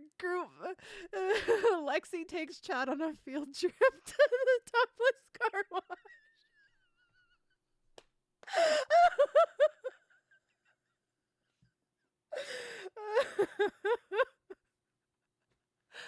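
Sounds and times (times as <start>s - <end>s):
woman laughing: 1.2s - 1.8s, 3.7s - 7.3s, 8.5s - 10.8s, 12.4s - 14.6s.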